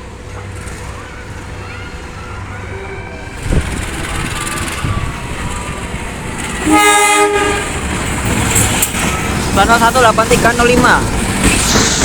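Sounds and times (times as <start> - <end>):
train rumbling: 0.0 - 12.0
train horn chord: 6.6 - 7.8.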